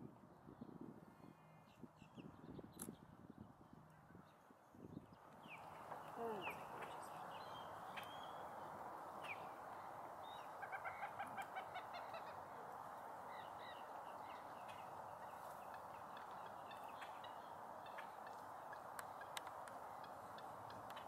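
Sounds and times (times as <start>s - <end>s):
wetland birds calling: 5.5s - 21.0s.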